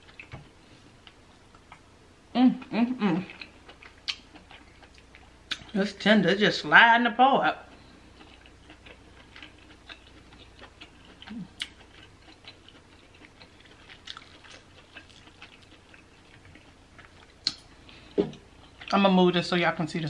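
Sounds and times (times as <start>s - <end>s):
wet chewing sounds: 3.2s - 5.8s, 7.7s - 19.0s.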